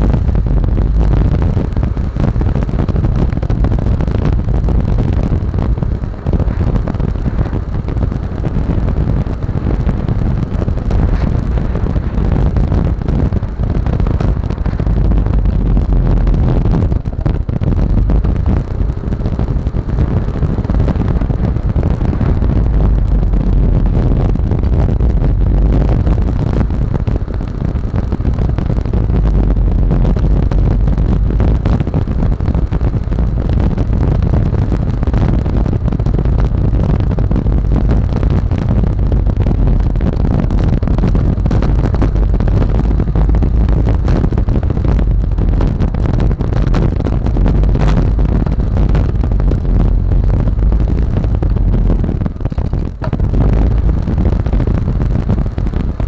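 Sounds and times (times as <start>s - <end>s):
scooter engine running: 0.0s - 56.0s
wind rumble on microphone: 0.0s - 56.0s.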